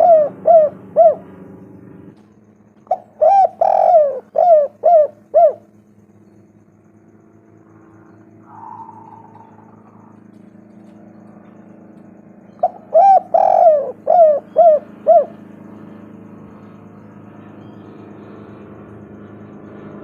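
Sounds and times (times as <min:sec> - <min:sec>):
dove cooing: 0:00.0 - 0:01.4, 0:02.8 - 0:05.8, 0:07.9 - 0:11.9, 0:12.5 - 0:18.9
low hum: 0:00.0 - 0:20.0.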